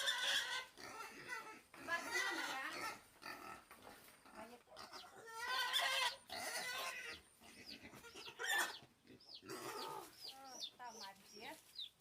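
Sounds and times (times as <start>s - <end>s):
pig squealing and grunting: 0.0s - 3.7s, 4.4s - 10.2s.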